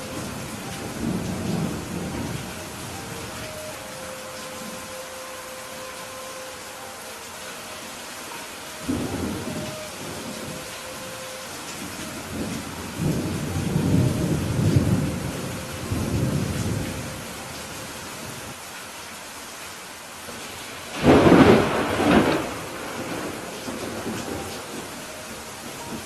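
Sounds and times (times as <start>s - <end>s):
thunder rumbling: 0.0s - 5.0s, 8.3s - 17.5s, 20.9s - 26.0s
steady rain: 0.0s - 26.0s
sharp thunderclap: 21.0s - 24.2s.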